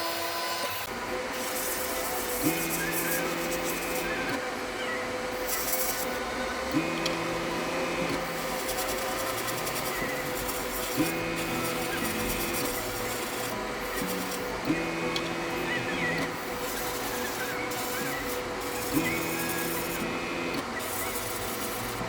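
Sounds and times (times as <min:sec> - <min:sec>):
airbrush compressor humming: 0:00.0 - 0:22.0
air hissing through airbrush: 0:00.5 - 0:04.4, 0:05.3 - 0:06.2, 0:06.8 - 0:22.0.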